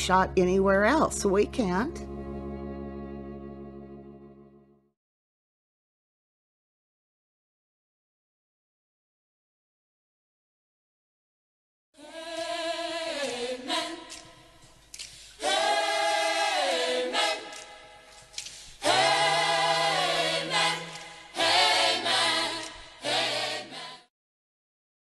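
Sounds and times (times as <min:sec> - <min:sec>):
choir singing a cappella: 0:12.0 - 0:14.6, 0:15.4 - 0:18.1, 0:18.8 - 0:24.1.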